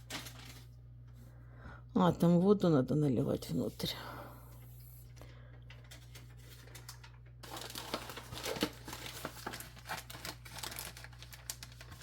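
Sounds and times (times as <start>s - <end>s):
plastic packaging crinkling: 0.0s - 0.8s, 5.7s - 12.0s
steady low hum: 0.0s - 7.6s.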